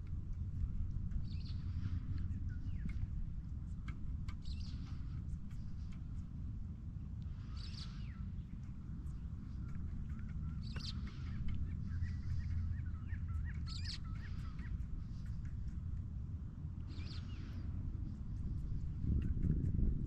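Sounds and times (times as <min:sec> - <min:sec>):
steady low rumble: 0:00.0 - 0:20.0
birds twittering: 0:00.6 - 0:06.2, 0:07.3 - 0:16.2, 0:16.8 - 0:19.4
bird calling: 0:09.1 - 0:15.4.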